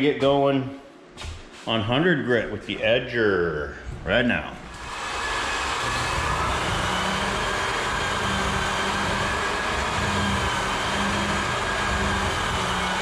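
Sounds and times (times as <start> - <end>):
floor sander running on hardwood: 4.7 - 13.0.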